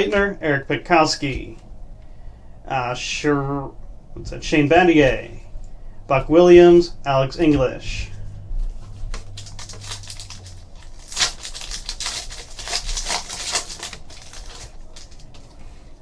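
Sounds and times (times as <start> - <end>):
trading cards crinkling and clicking: 7.5 - 16.0.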